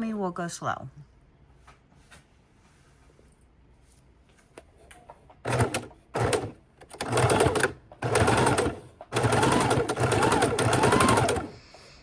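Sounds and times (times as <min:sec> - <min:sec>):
sewing machine stitching: 0:05.4 - 0:11.6.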